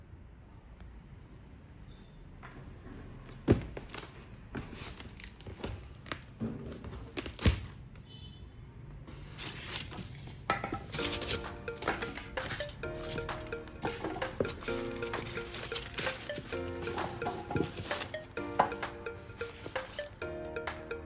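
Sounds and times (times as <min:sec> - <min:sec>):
foam box tearing and crinkling: 0:03.8 - 0:07.8, 0:09.1 - 0:20.2.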